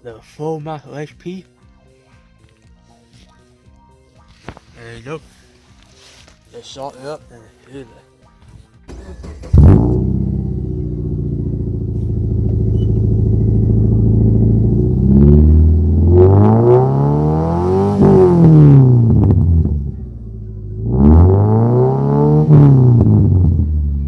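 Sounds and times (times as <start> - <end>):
car engine idling and revving: 8.9 - 24.0.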